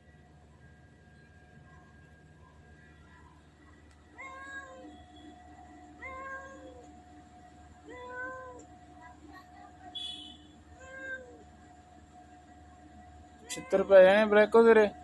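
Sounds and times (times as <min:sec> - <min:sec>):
cat meowing: 0:06.0 - 0:06.8.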